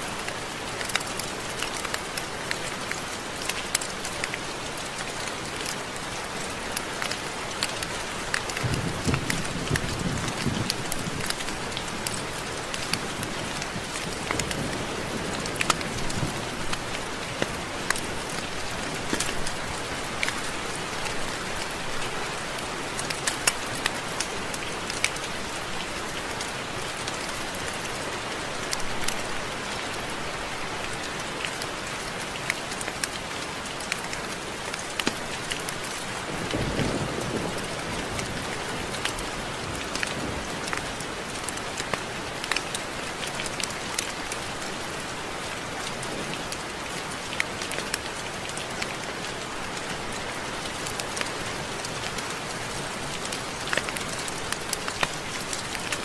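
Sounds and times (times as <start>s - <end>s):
raindrops ticking: 0.0s - 56.0s
steady rain hiss: 0.0s - 56.0s.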